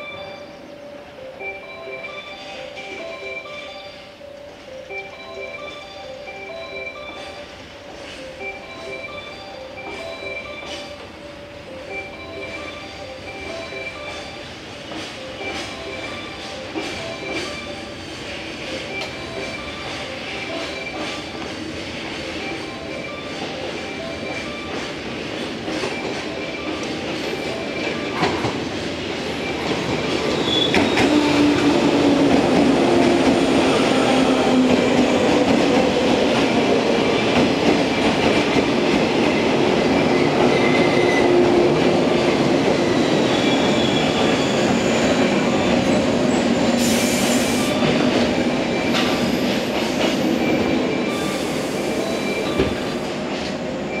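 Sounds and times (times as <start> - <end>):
train wheels squealing and clattering: 11.9 - 54.0.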